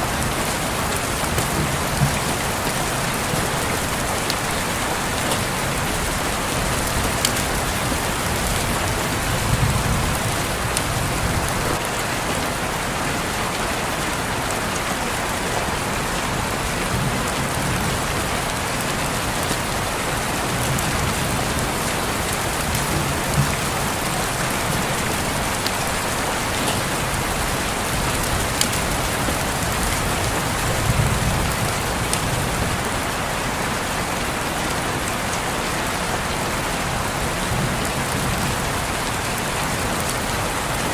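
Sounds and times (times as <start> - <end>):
rain pattering on a window: 0.0 - 40.9.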